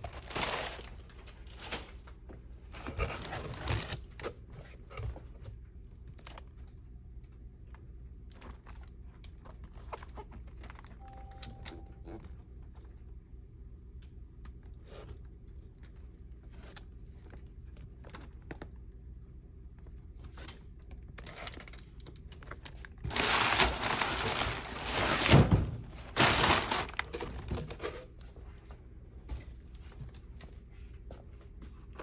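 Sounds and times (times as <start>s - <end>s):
packaging crinkling and tearing: 0.0s - 2.1s, 2.7s - 4.9s, 20.2s - 27.8s.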